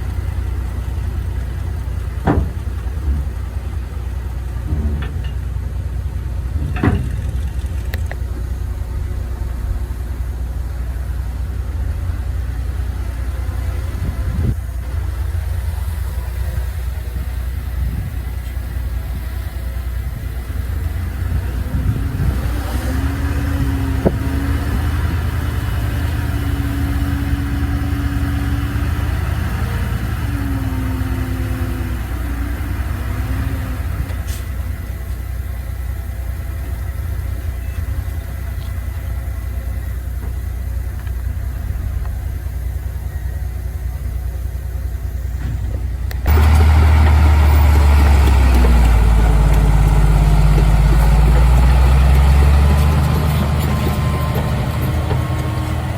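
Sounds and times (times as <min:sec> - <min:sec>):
heavy machinery diesel engines: 0:00.0 - 0:55.9
wavering whine: 0:07.0 - 0:14.6.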